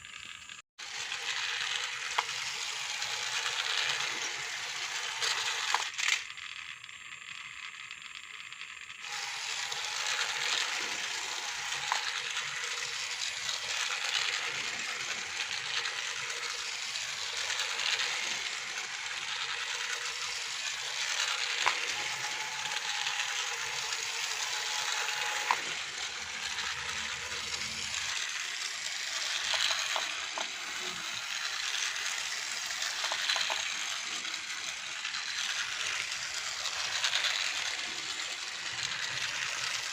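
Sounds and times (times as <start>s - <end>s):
toy motors and gears rattling: 0.0s - 39.9s.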